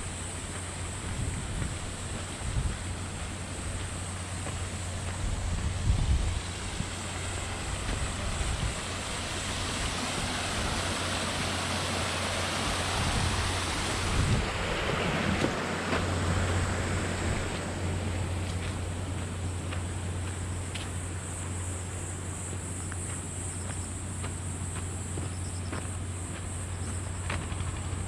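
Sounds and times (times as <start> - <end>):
wind buffeting microphone: 0.0 - 19.7
rushing outdoor noise: 0.0 - 28.0.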